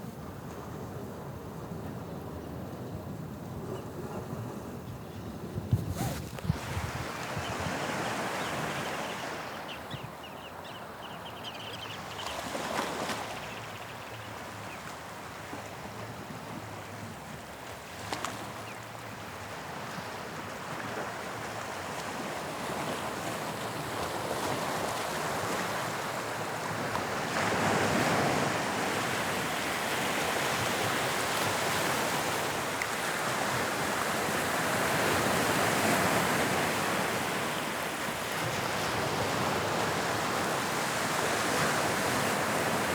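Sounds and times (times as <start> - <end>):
sea waves breaking on shore: 5.8 - 9.7, 19.6 - 42.9.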